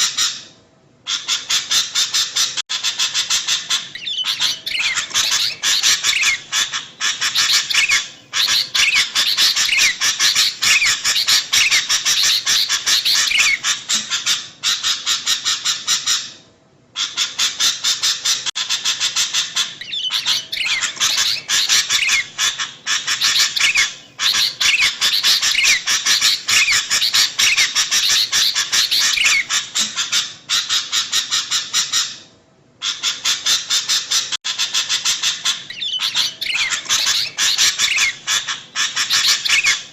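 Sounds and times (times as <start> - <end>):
bulbuls chattering: 2.9 - 13.9, 35.7 - 39.9.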